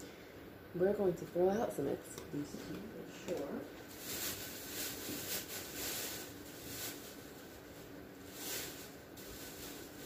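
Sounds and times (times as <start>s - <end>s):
packaging rustling and crinkling: 3.8s - 10.0s.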